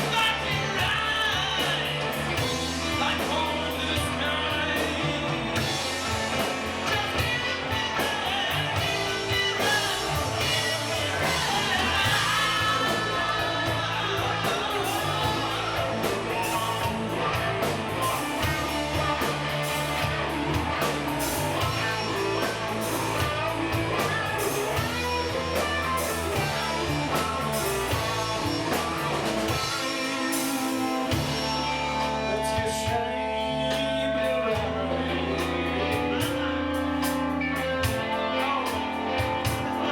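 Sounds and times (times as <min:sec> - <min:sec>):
person singing: 0:00.0 - 0:19.3
rock band playing: 0:00.0 - 0:39.9.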